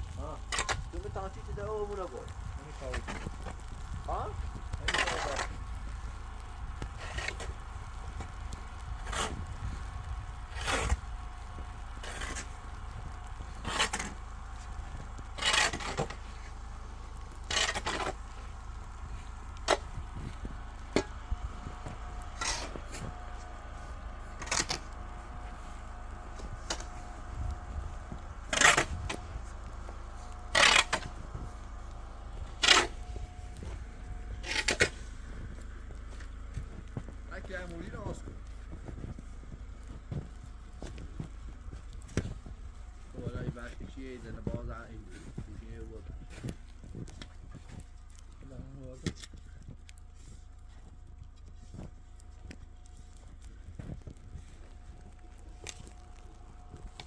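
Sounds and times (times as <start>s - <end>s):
steady low rumble: 0.0s - 57.0s
shovel scraping snow: 1.8s - 35.6s.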